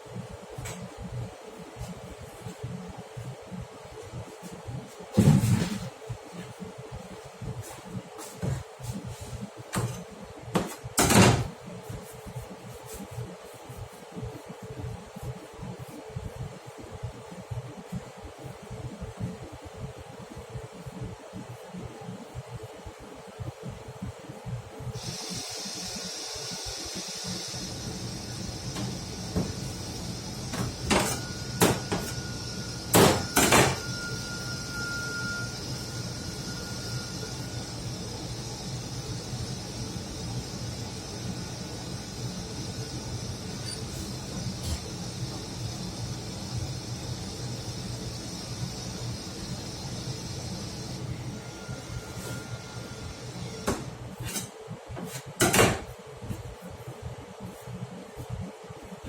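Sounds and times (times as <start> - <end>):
steady low hum: 0.0 - 59.0
thin high tone: 31.1 - 37.9.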